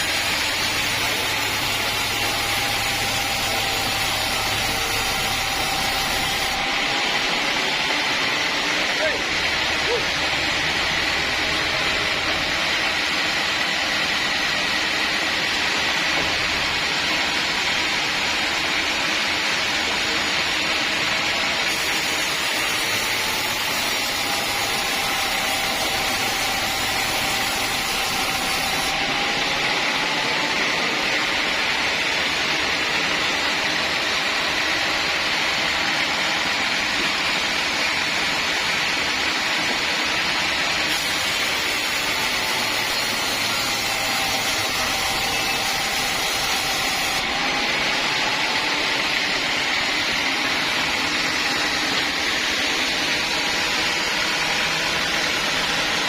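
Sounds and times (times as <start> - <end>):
lower machine whine: 0.0 - 56.0
saw high whine: 0.0 - 56.0.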